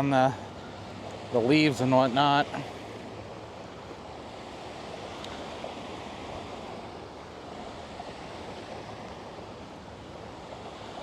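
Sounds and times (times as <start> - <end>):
flowing river water: 0.0 - 11.0
faint tick: 5.2 - 5.4.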